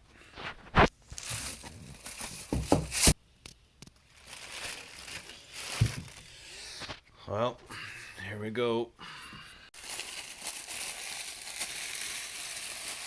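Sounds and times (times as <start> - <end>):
packaging rustling and crinkling: 0.4 - 3.2, 3.9 - 6.4, 9.8 - 13.0.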